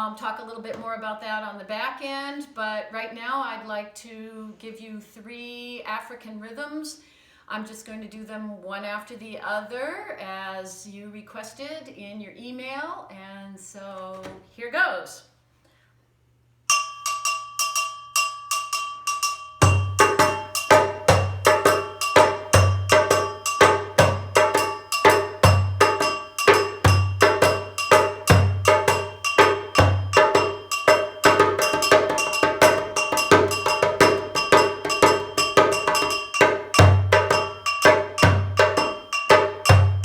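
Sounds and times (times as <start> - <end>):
bell-like percussion strikes: 16.7 - 40.0.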